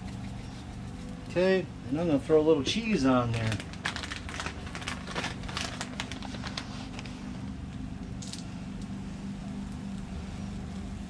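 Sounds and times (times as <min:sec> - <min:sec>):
plastic bag rustling: 0:03.2 - 0:07.5.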